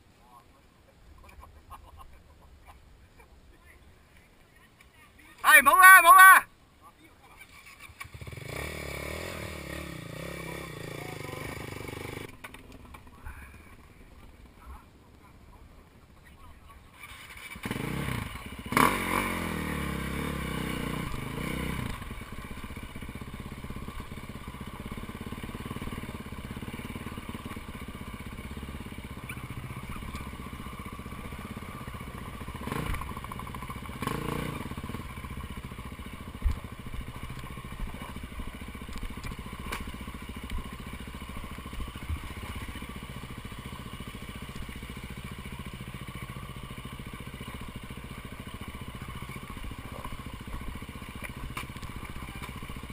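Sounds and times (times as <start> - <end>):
vehicle engine running: 17.3 - 52.9
engine knocks and clatters: 21.1 - 52.9.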